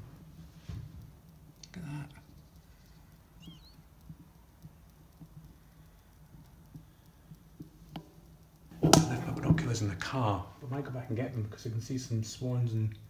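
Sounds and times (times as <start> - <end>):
faint taps: 4.0 - 10.2.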